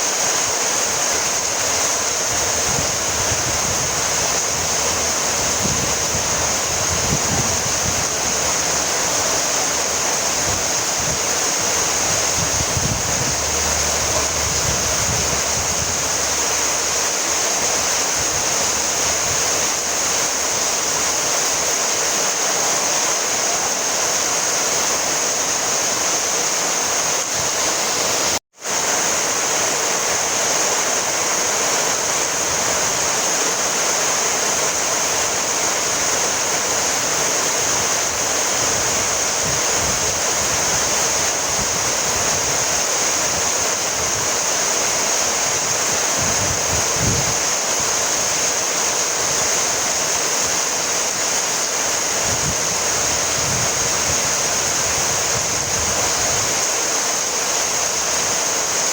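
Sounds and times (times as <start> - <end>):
heavy rain hissing: 0.0 - 58.9
low rumble: 11.9 - 17.0.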